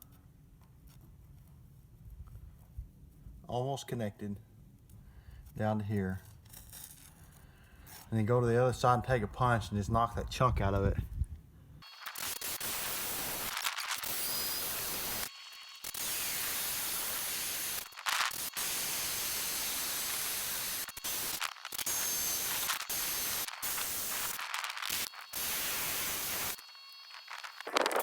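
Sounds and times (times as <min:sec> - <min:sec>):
power drill boring into steel: 0:11.8 - 0:28.0.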